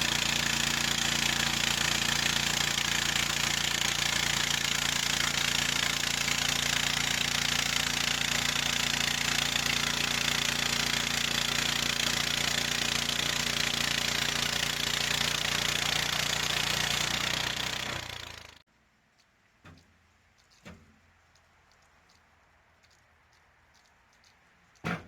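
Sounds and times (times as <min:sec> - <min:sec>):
blade hissing through log: 0:00.0 - 0:18.6
sawmill engine running: 0:00.0 - 0:18.6.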